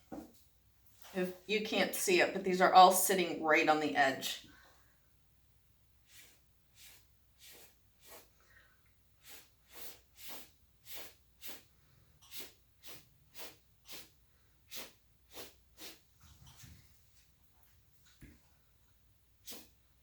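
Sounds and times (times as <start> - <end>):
short airy hisses: 6.0 - 8.5, 9.2 - 16.1, 19.4 - 19.8.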